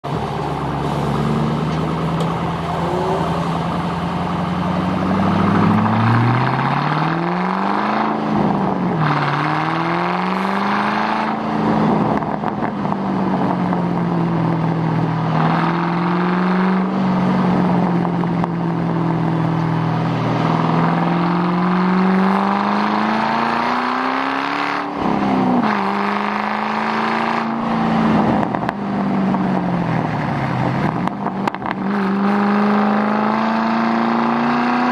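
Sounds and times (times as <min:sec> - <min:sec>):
car engine revving: 0:00.0 - 0:34.9.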